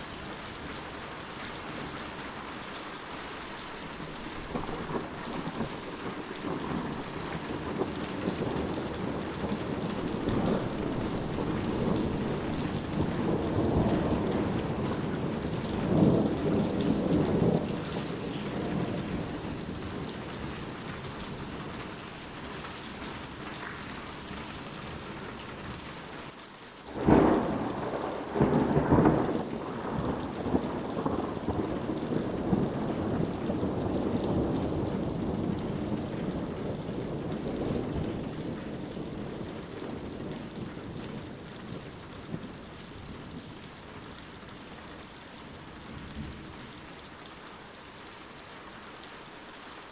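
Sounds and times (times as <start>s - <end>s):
steady rain: 0.0s - 49.9s
rolling thunder: 4.4s - 21.9s, 26.9s - 43.6s.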